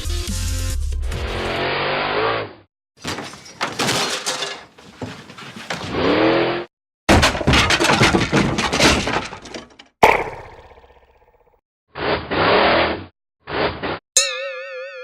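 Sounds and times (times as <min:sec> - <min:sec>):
rapid breaking impacts: 0:03.0 - 0:05.9, 0:07.1 - 0:11.0.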